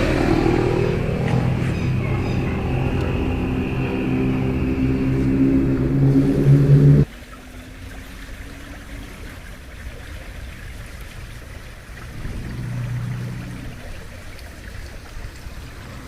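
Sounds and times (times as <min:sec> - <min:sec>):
heavy engine running: 0:00.0 - 0:07.1
faint low engine hum: 0:00.0 - 0:16.0
stream flowing: 0:00.0 - 0:16.0.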